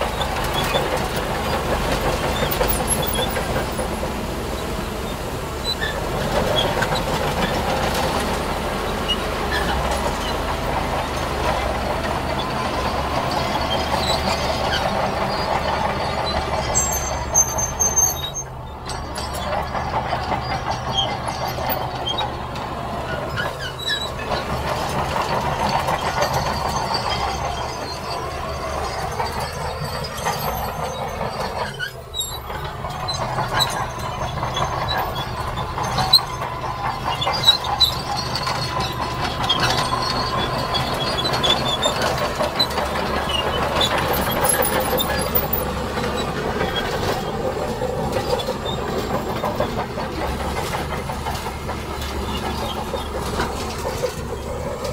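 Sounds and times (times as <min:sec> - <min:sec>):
diesel engines running: 0:00.0 - 0:54.9
high squeal: 0:12.3 - 0:22.4, 0:23.1 - 0:50.8.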